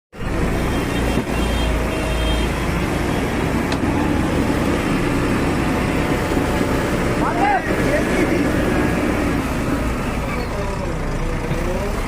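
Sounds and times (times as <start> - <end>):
heavy diesel machinery rumbling: 0.2 - 12.0.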